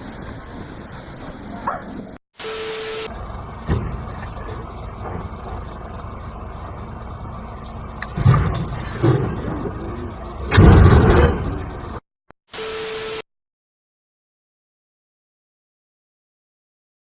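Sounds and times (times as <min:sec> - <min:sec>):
motor vehicle rumble: 0:00.0 - 0:02.2, 0:03.0 - 0:12.0
noisy surge: 0:00.0 - 0:03.2.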